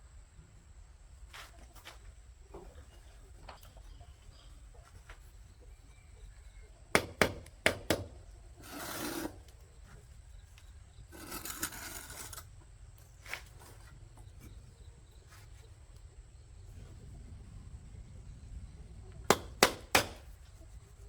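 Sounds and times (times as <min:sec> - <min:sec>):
scraping sounds: 0:08.6 - 0:10.0, 0:11.1 - 0:12.5
sharp knocks: 0:19.3 - 0:20.3.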